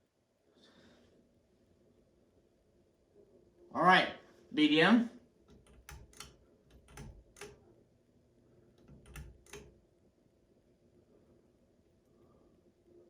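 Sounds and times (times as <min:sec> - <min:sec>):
fan pull-chain switch clicking: 0:05.5 - 0:07.7, 0:08.8 - 0:09.8.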